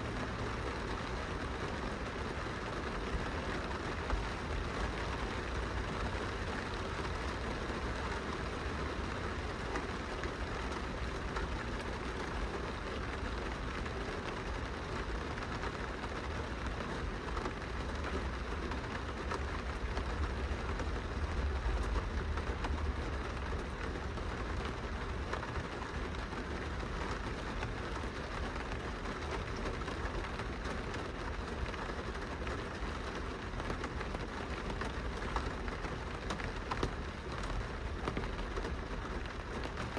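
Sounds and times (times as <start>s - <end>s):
rain pattering on glass window: 0.0s - 39.9s.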